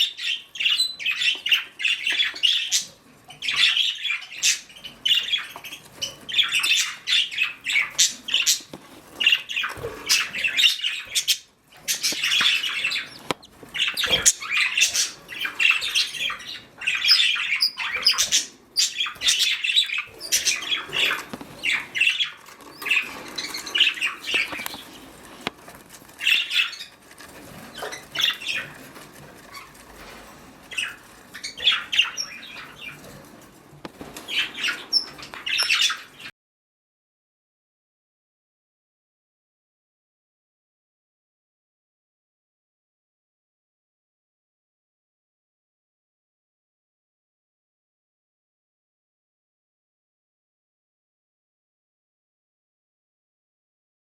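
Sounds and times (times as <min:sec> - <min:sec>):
budgerigars chirping and squawking: 0:00.0 - 0:36.3.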